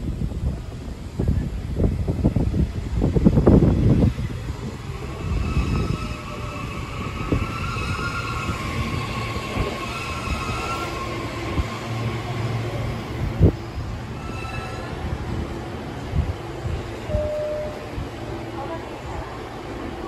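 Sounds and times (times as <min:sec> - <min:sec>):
train low rumble: 0:00.0 - 0:20.0
high wavering squealing: 0:05.0 - 0:12.5, 0:13.7 - 0:15.2.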